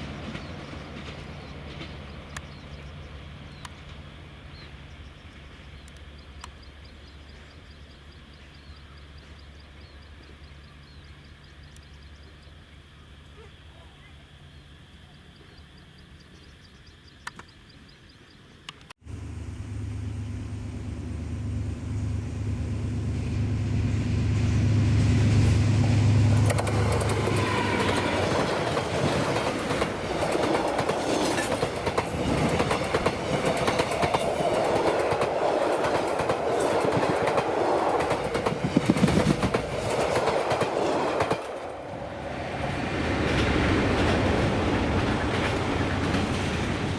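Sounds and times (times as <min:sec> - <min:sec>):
train coaches rushing past: 0:00.0 - 0:05.8, 0:21.0 - 0:46.9
diesel locomotive engine drone: 0:00.0 - 0:13.3, 0:19.0 - 0:46.9
wheels clicking over rail joints: 0:26.3 - 0:41.7.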